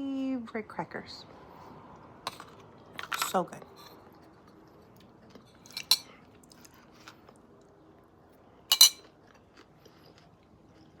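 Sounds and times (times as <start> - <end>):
cutlery clinking against a dish: 2.3 - 4.0, 5.5 - 6.2, 8.7 - 9.1.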